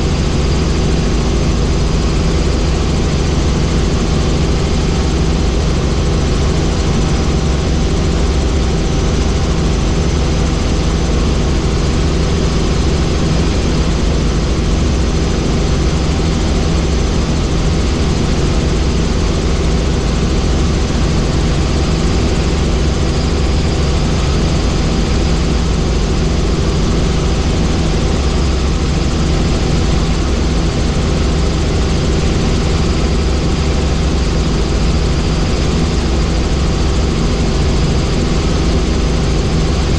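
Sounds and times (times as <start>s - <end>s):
helicopter rotor drone: 0.0s - 39.9s.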